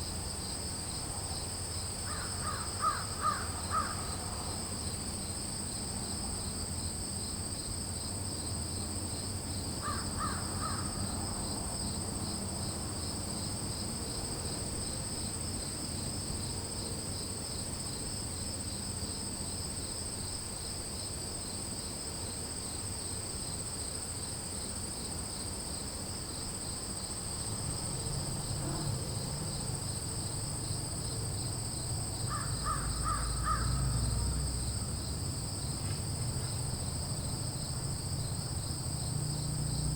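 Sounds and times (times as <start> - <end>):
crows cawing: 2.1 - 4.1, 9.8 - 10.9, 32.3 - 33.9
high-pitched insect chorus: 25.3 - 39.9.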